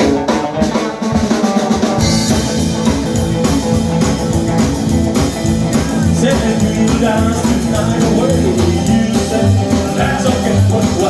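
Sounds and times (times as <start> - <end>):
drum kit: 0.0 - 11.0
guitar: 0.0 - 11.0
live band playing: 0.0 - 11.0.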